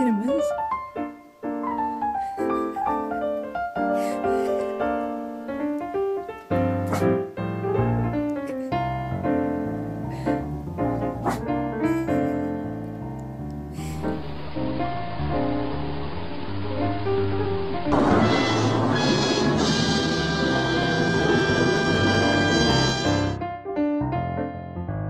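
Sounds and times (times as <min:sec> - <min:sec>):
piano melody: 0:00.0 - 0:25.0
bass line: 0:08.8 - 0:23.4.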